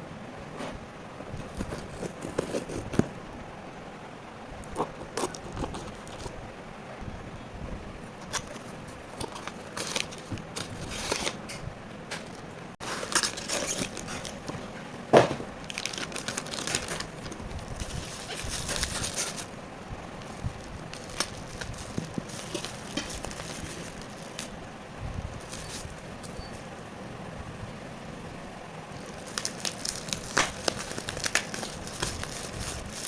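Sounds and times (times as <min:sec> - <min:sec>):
packaging crinkling: 0:01.4 - 0:03.2, 0:04.6 - 0:06.4, 0:08.2 - 0:11.4, 0:12.1 - 0:24.6, 0:25.3 - 0:26.4, 0:28.9 - 0:33.0.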